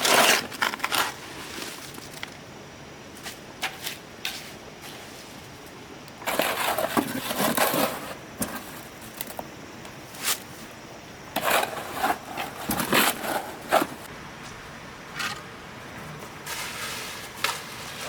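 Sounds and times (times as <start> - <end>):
gritty scraping and crunching: 0.0 - 2.4, 6.2 - 9.4, 11.3 - 14.1, 16.4 - 18.0.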